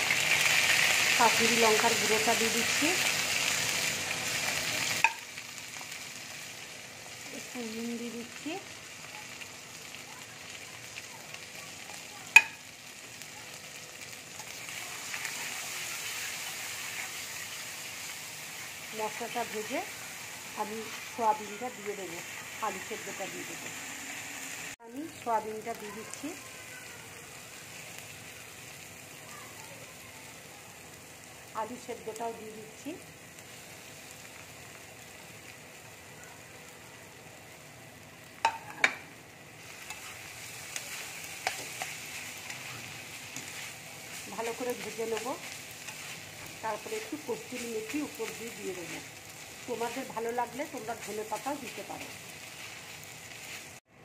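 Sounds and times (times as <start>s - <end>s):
spice paste sizzling in oil: 0.0s - 53.9s
metal spatula scraping a pan: 39.7s - 46.6s.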